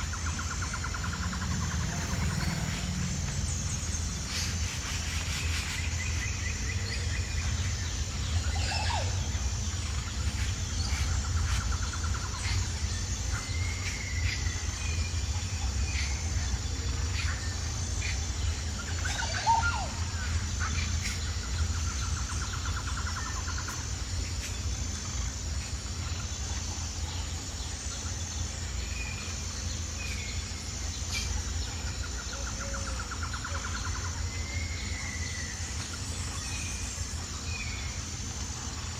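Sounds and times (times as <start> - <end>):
low rumble: 0.0 - 8.6
birds chirping and trilling: 0.0 - 38.9
pulsing high-pitched buzz: 0.0 - 38.9.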